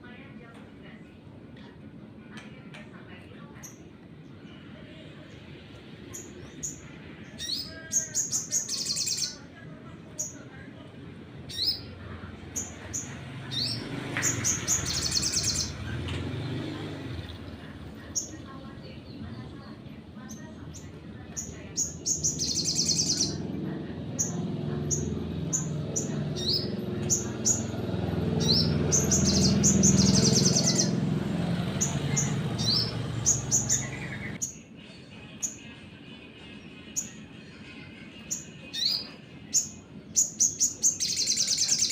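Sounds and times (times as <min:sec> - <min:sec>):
songbird chirping and trilling: 0:00.0 - 0:41.9
sunbird chirps: 0:12.5 - 0:15.8, 0:20.7 - 0:23.4, 0:24.2 - 0:31.1, 0:31.7 - 0:34.4, 0:38.7 - 0:41.9.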